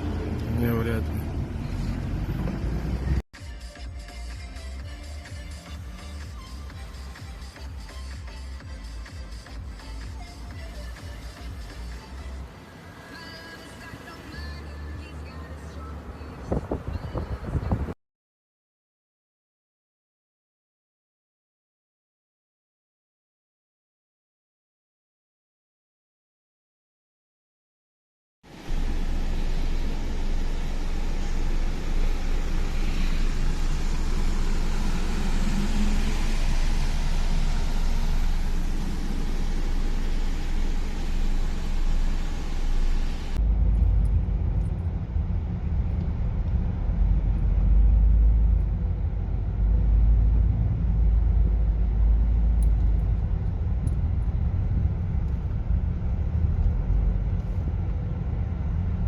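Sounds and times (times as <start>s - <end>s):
car driving rumble: 0.0s - 3.2s, 4.6s - 18.0s, 28.5s - 59.0s
traffic noise: 0.0s - 18.0s, 28.5s - 59.0s.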